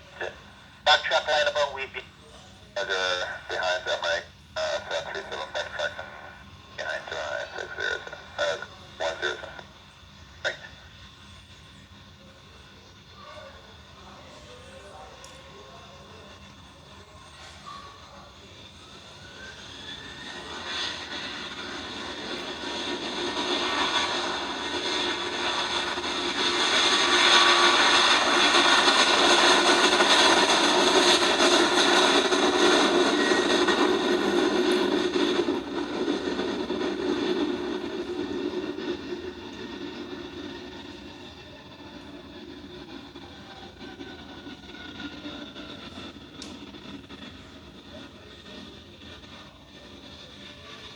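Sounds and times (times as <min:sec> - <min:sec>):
jet airliner passing: 0:00.0 - 0:50.9
rising engine whine: 0:15.5 - 0:50.8.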